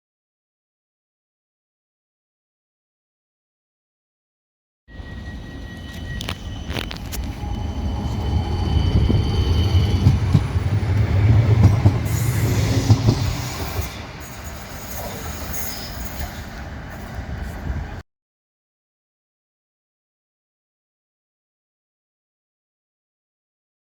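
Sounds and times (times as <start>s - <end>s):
wheel squeal: 4.9s - 17.6s
tram rumbling past: 4.9s - 18.0s.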